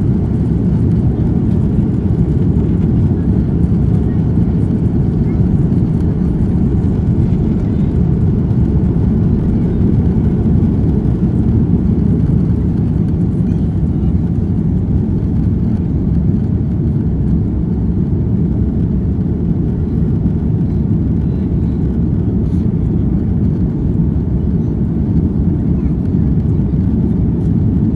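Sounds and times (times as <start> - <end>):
airliner cabin engine rumble: 0.0 - 27.9.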